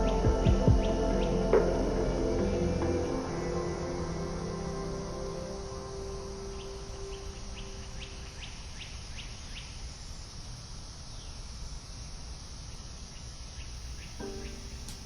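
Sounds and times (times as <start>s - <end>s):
background music: 0.0s - 8.5s, 13.8s - 15.0s
outdoor background noise: 0.0s - 15.0s.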